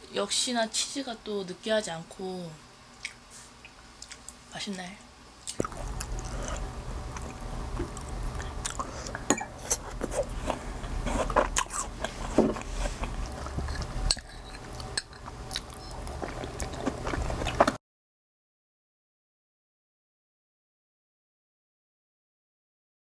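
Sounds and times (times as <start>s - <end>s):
steady low hum: 0.0s - 17.8s.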